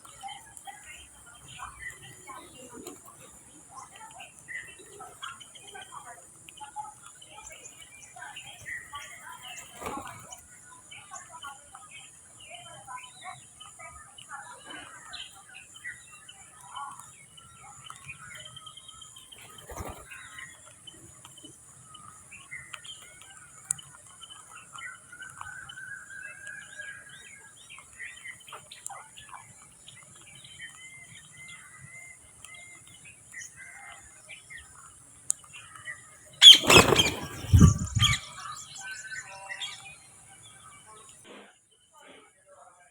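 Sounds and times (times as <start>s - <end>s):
small birds chirping: 0.0s - 41.2s
bird wings flapping: 9.5s - 10.4s, 19.3s - 20.4s, 36.4s - 38.2s
whistle-like bird call: 36.4s - 38.3s.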